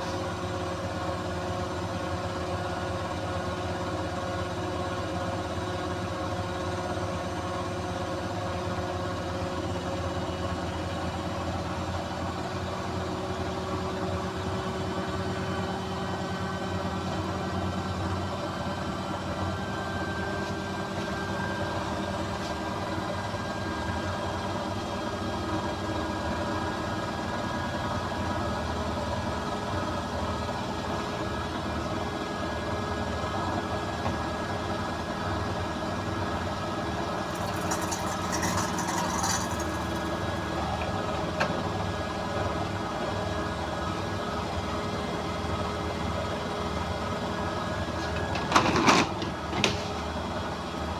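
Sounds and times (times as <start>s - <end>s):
washing machine spinning: 36.4s - 41.1s.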